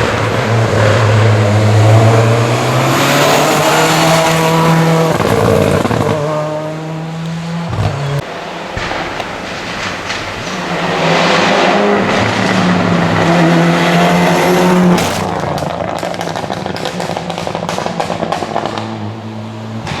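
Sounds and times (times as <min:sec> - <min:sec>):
rally car engine revving: 0:00.0 - 0:20.0
exhaust crackles: 0:07.2 - 0:20.0.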